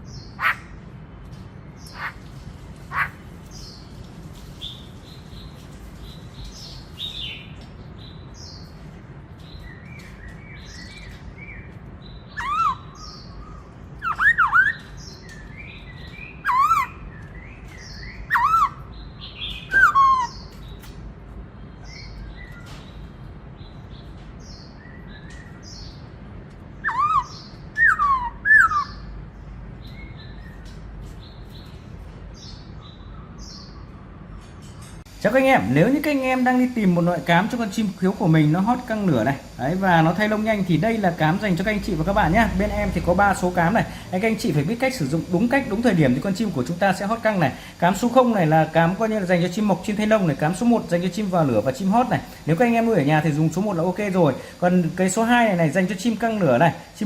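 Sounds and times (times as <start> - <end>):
bird singing whistled notes: 9.6 - 20.6, 26.8 - 29.1.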